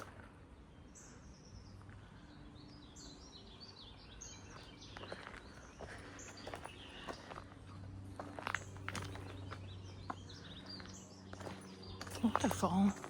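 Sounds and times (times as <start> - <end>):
footsteps on rocky ground: 4.4 - 13.0.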